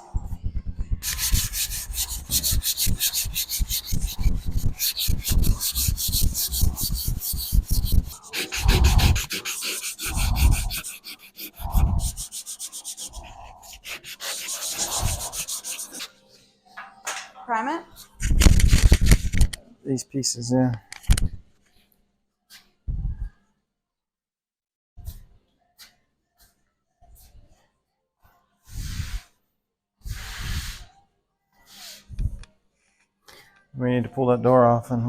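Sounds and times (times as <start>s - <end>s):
sandpaper scraping car panel: 1.0s - 16.1s.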